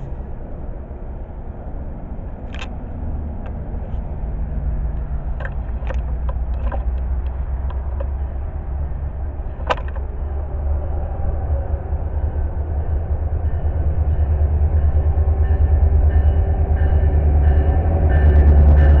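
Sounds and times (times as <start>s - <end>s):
train rumbling on rails: 0.0s - 19.0s
sharp rail clicks: 2.4s - 4.1s, 4.9s - 10.6s.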